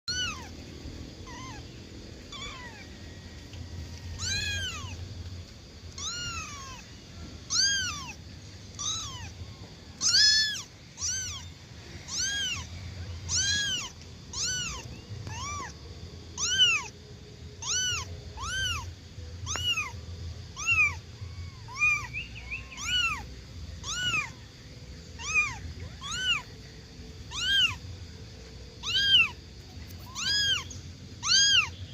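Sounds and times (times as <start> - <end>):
kitten meowing: 0.1 - 0.5, 1.2 - 1.7, 2.3 - 2.9, 4.1 - 5.0, 5.9 - 6.9, 7.5 - 15.8, 16.4 - 16.9, 17.6 - 24.4, 25.2 - 26.5, 27.3 - 27.8, 28.8 - 31.8.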